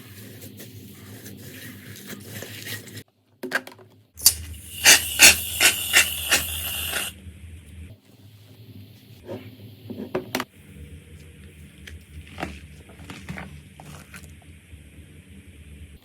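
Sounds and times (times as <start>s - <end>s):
steady hiss: 4.2s - 7.1s.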